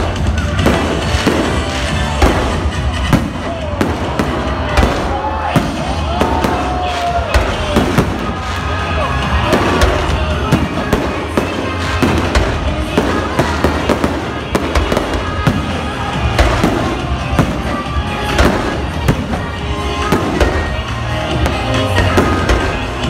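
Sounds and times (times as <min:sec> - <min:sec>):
fireworks bangs and crackles: 0:00.0 - 0:23.0
loud music with bass: 0:00.0 - 0:23.0.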